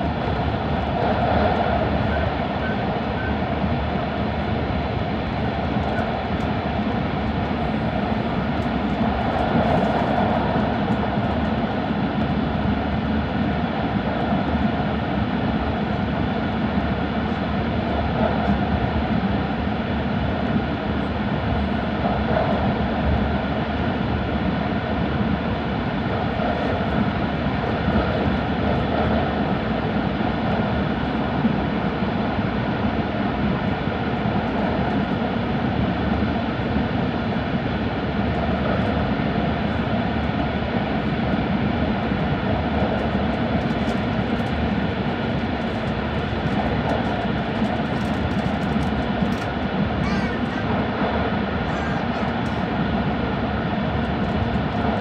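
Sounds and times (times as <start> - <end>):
train wheels rumbling on rail: 37.0 - 55.0.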